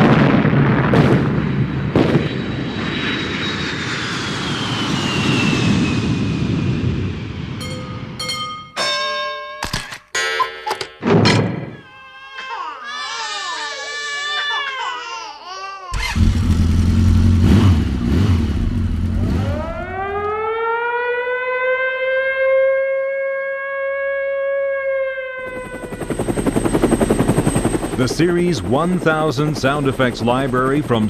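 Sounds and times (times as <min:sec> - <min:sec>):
sharp clicks and knocks: 0:09.6 - 0:11.7
loud low rumble: 0:16.2 - 0:20.2
siren wailing: 0:19.1 - 0:29.6.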